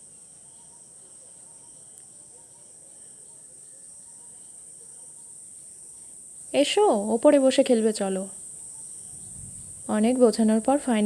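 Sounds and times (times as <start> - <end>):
soft repeating chirp: 0.0 - 5.4
insects chirring: 0.0 - 11.0.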